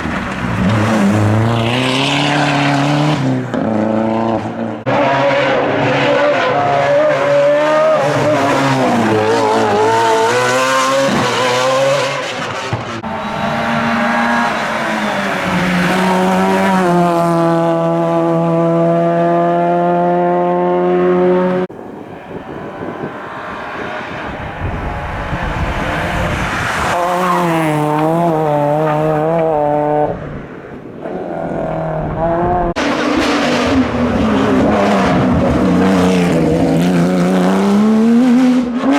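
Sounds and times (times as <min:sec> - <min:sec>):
race car engines revving: 0:00.0 - 0:38.9
tyre squeal: 0:13.0 - 0:16.8.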